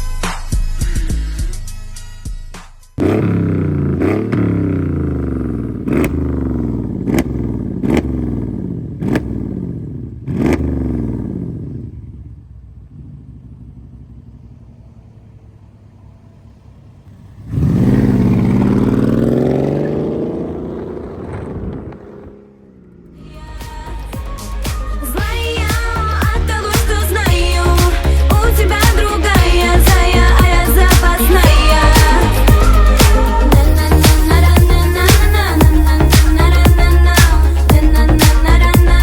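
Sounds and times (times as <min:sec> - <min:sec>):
exhaust crack: 0:02.6 - 0:39.0
car engine revving: 0:03.0 - 0:39.0.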